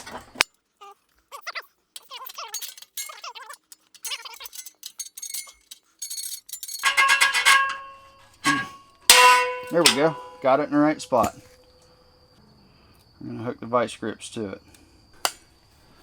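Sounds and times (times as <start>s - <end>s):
metal clicks and squeaks: 1.4s - 11.8s
loud metallic clang: 6.8s - 11.5s.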